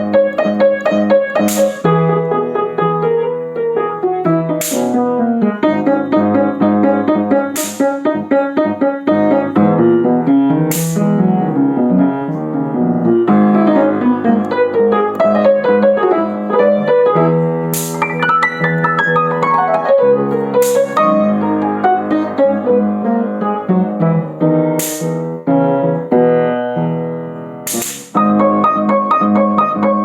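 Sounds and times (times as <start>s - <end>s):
piano melody: 0.0s - 30.0s
short bright hiss: 1.4s - 1.9s, 4.6s - 5.1s, 7.6s - 8.1s, 10.7s - 11.2s, 17.7s - 18.2s, 20.6s - 21.0s, 24.8s - 25.3s, 27.7s - 28.2s.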